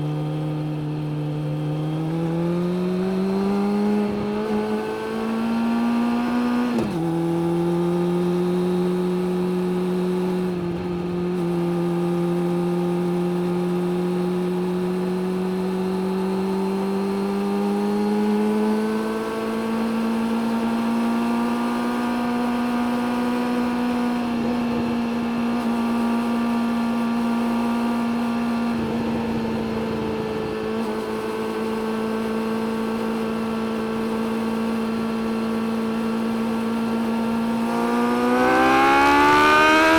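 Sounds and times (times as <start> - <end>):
motorcycle engine under load: 22.0 - 39.9.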